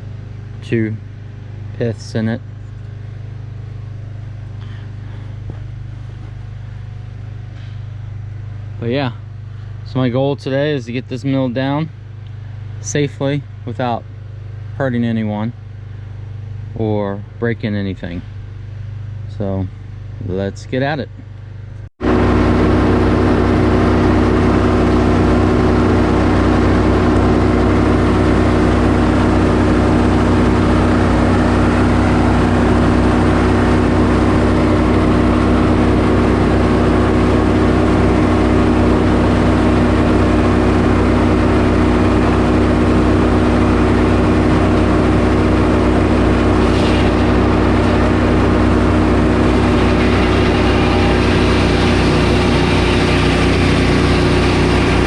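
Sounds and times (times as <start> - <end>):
sawmill engine running: 22.0 - 55.0.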